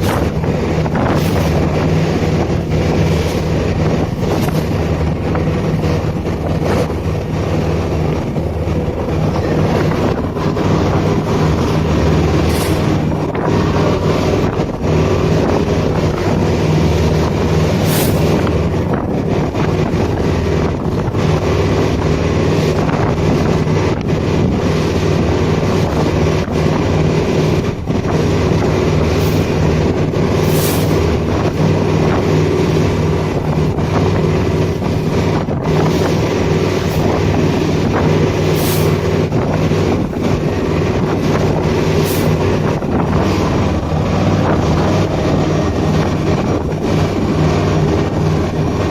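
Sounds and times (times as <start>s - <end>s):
motorboat engine running: 0.0s - 48.9s
wind buffeting microphone: 0.0s - 48.9s.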